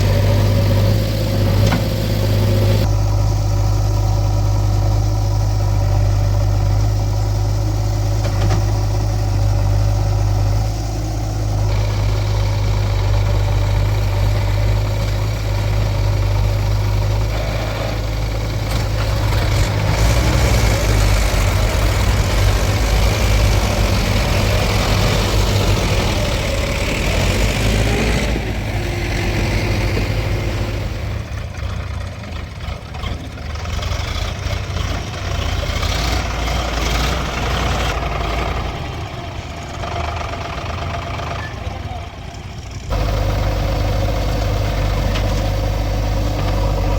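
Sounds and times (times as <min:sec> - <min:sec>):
diesel engines running: 0:00.0 - 0:46.9.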